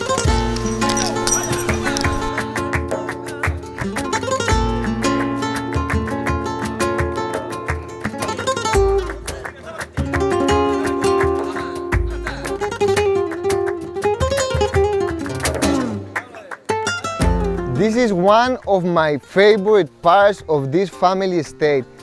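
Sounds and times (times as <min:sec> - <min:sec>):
flamenco acoustic guitar: 0:00.0 - 0:22.0
deep bass notes: 0:17.2 - 0:18.0.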